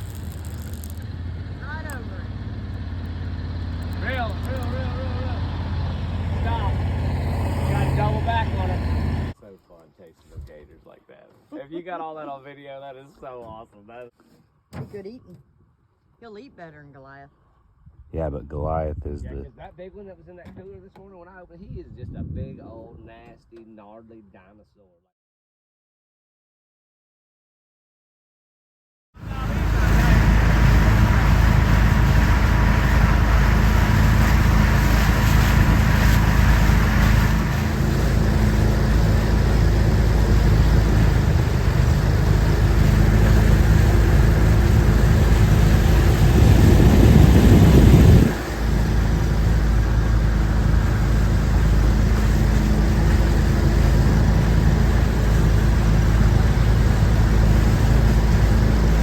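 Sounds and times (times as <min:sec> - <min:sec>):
boat motor running: 0:00.0 - 0:09.4, 0:29.2 - 0:59.0.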